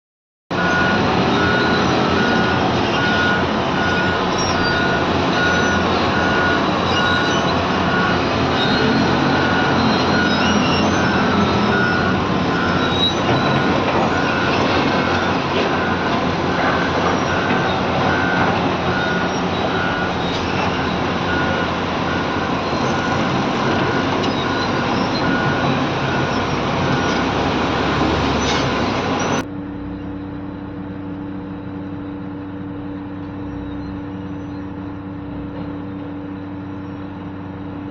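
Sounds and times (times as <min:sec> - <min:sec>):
excavator engine and hydraulics: 0:00.5 - 0:37.9
reversing alarm beeping: 0:00.6 - 0:30.3.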